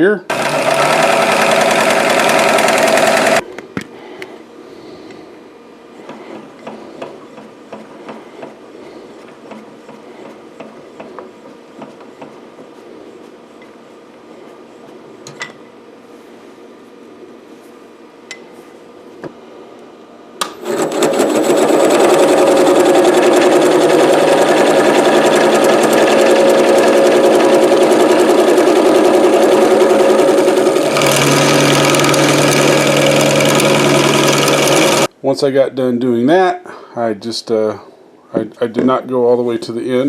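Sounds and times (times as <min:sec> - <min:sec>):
wood lathe running hum: 0:00.3 - 0:03.4, 0:20.6 - 0:35.1
tool scraping wood: 0:20.6 - 0:35.1.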